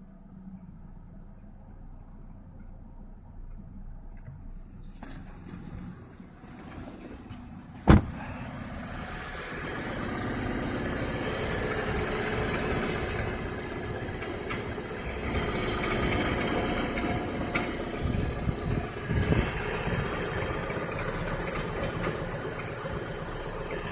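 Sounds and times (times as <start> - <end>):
car engine idling with knock: 3.5 - 8.8, 10.4 - 23.9.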